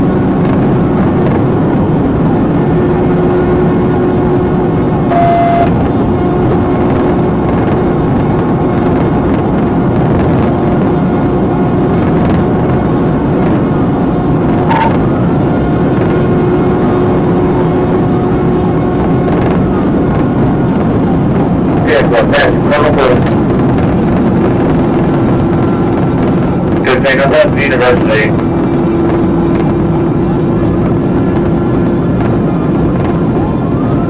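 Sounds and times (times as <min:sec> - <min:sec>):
car driving at speed: 0:00.0 - 0:34.0.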